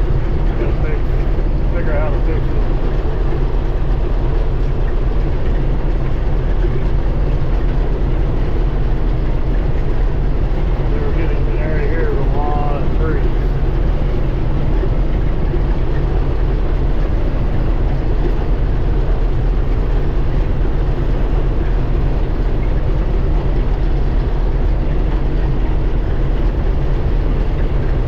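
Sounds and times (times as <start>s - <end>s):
combine harvester machinery drone: 0.0s - 28.0s.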